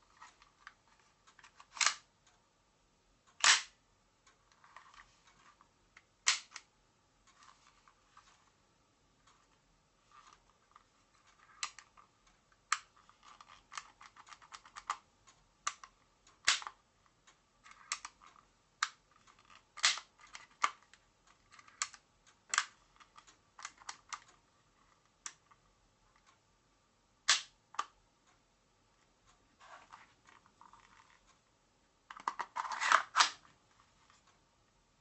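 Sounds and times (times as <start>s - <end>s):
metal pistol parts clicking: 1.5s - 2.0s.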